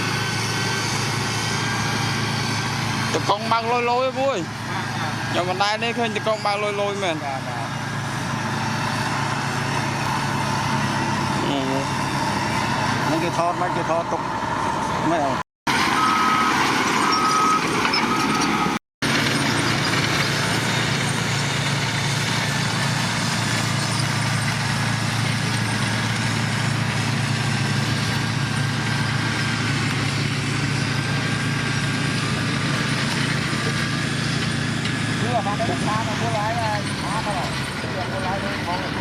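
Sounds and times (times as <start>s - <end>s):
diesel engine droning: 0.0s - 39.0s
reversing alarm beeping: 15.7s - 18.8s.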